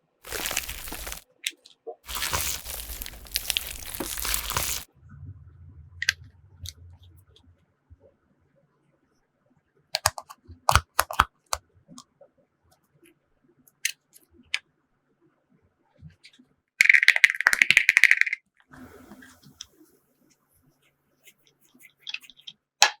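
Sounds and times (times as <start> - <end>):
fast rattling crackle: 0.2 - 1.2, 2.1 - 4.9
sharp clicks of containers: 10.0 - 11.3.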